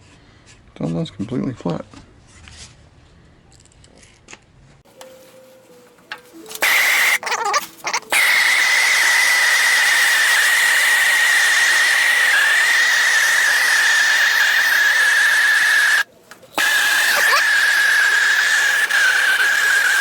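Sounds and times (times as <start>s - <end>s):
gas torch hissing and whistling: 6.6s - 7.2s, 8.1s - 20.0s.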